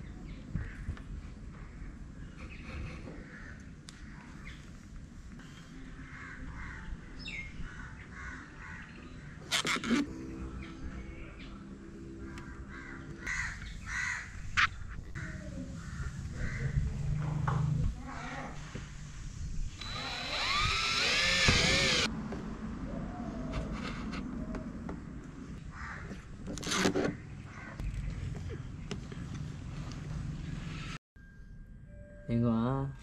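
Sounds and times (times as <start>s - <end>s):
birds calling: 5.4s - 17.2s, 22.9s - 29.4s
low hum: 10.0s - 13.8s.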